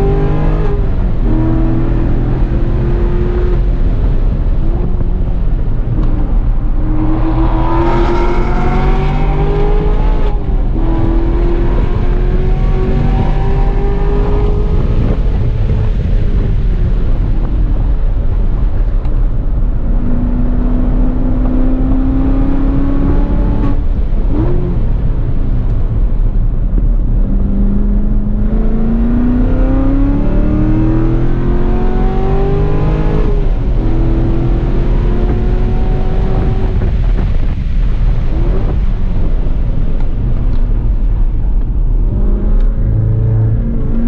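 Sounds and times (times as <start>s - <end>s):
wind rumble on microphone: 0.0s - 44.0s
sports car engine revving: 4.6s - 16.5s, 19.7s - 25.2s, 27.2s - 37.5s.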